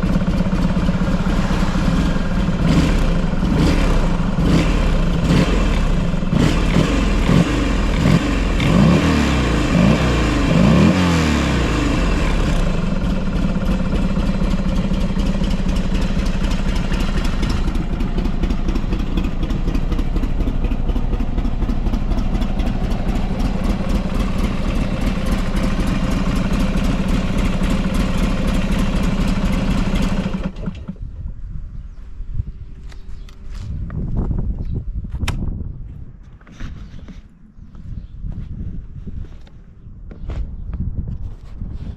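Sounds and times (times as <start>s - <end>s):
motorcycle engine revving: 0.0s - 31.0s
motorcycle engine idling: 0.0s - 31.1s.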